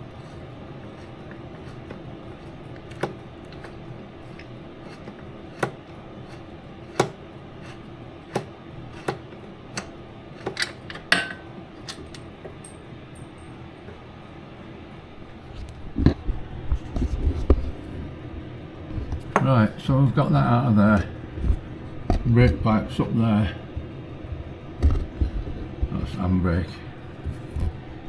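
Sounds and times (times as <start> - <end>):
metal tools clinking on fittings: 10.6 - 13.9.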